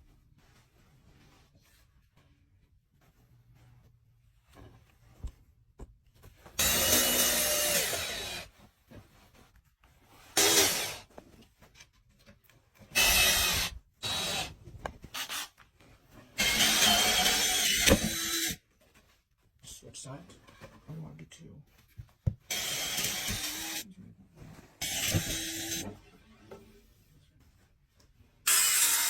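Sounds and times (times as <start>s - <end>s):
power tool whining: 6.6s - 8.5s, 16.4s - 18.6s, 22.5s - 23.8s, 24.8s - 25.9s, 28.5s - 29.0s.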